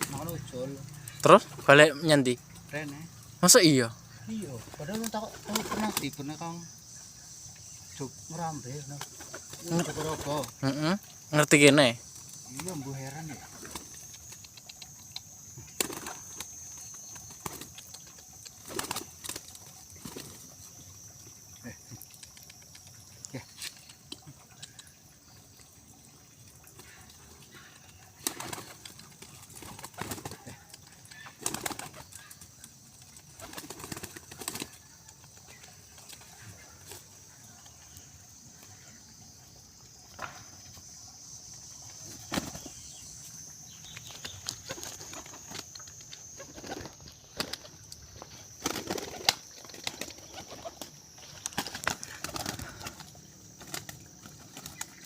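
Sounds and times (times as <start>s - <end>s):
pigeons flapping wings: 4.5s - 6.2s, 9.0s - 10.6s, 13.4s - 14.8s, 15.7s - 20.5s, 28.2s - 37.0s, 42.1s - 42.8s, 44.1s - 47.8s, 48.4s - 55.0s.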